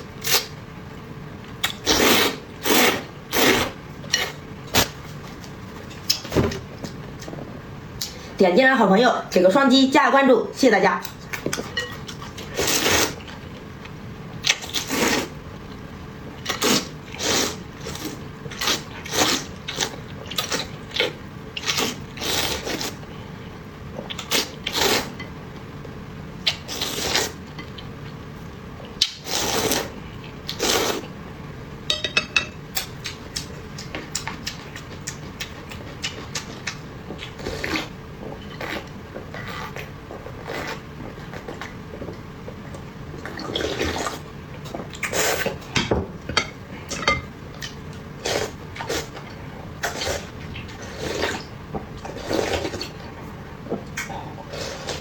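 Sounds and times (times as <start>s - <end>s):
slurping and smacking while eating: 1.6s - 5.2s, 14.4s - 15.4s, 16.4s - 23.0s, 24.0s - 25.2s, 28.9s - 31.1s, 32.8s - 45.7s, 47.6s - 55.0s.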